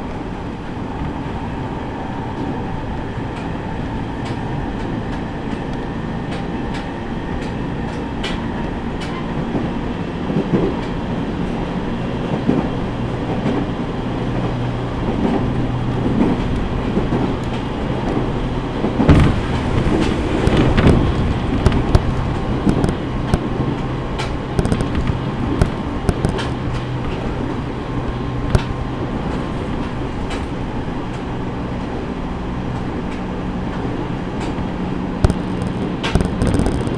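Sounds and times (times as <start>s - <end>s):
passing train bang and rush: 0.0s - 36.9s
train running hum: 0.0s - 36.9s
wheels clicking over rail joints: 3.2s - 36.9s.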